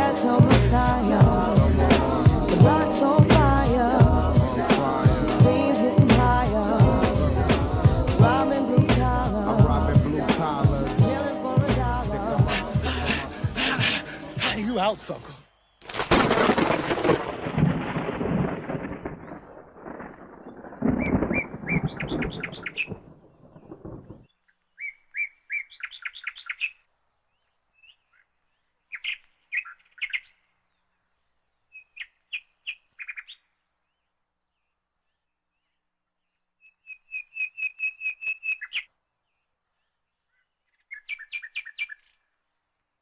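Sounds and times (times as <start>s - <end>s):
low rumble: 6.2s - 8.4s
bird chirping phrases: 24.4s - 42.3s.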